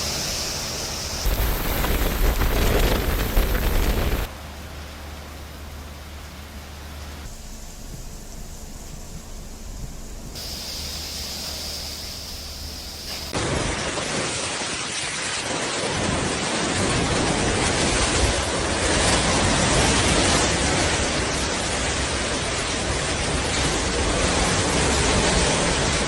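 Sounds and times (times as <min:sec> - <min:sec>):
wind roaring: 0:00.0 - 0:04.4.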